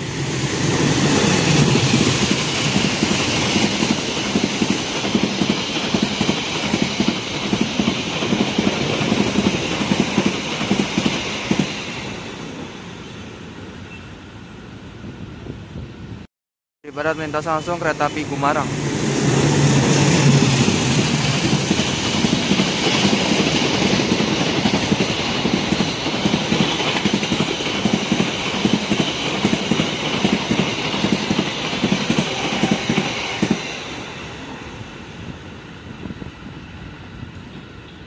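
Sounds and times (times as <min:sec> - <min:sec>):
diesel locomotive passing: 0:00.0 - 0:16.2, 0:16.9 - 0:38.0
clickety-clack of train wheels: 0:00.6 - 0:12.1, 0:19.7 - 0:34.1.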